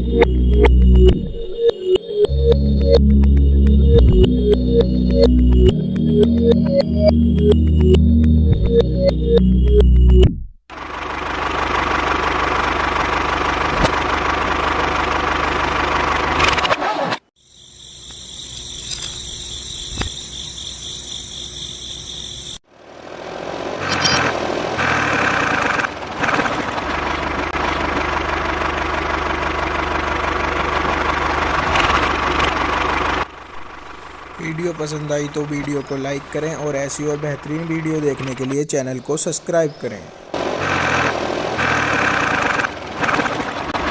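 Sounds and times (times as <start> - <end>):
small motor running: 40.6 - 43.8.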